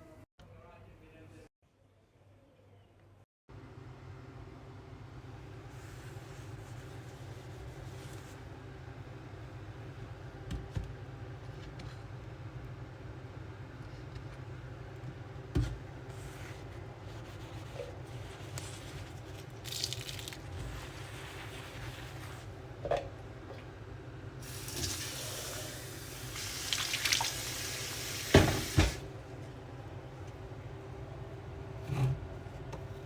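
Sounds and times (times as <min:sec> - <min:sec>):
kitchen tap running: 0:24.4 - 0:29.1
knocks of things handled at sink: 0:28.3 - 0:29.0.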